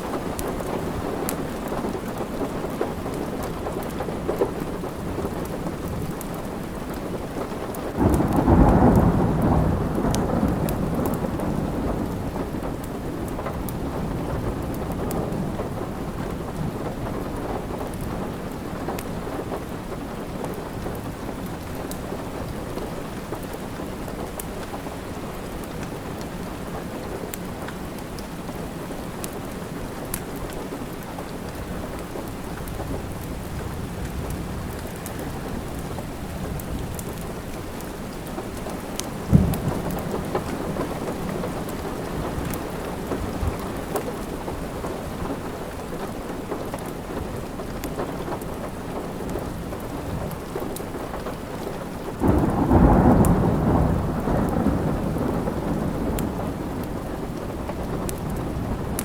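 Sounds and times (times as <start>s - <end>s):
steady rain: 0.0s - 59.0s
wood fire crackles: 0.0s - 59.0s
thunder rumbling: 7.9s - 22.9s, 31.6s - 46.4s, 52.1s - 59.0s.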